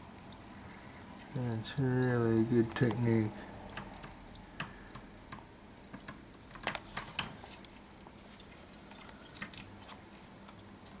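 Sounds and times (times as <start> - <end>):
cockatiels clicking and pecking: 3.5 - 11.0.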